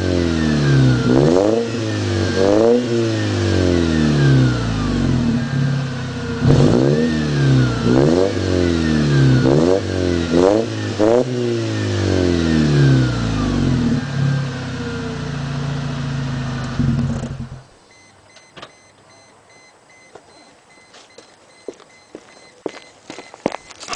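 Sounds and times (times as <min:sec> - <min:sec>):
car engine revving: 0:00.0 - 0:17.7
supercharger whine: 0:00.0 - 0:17.8
electronic beeping: 0:17.9 - 0:23.9.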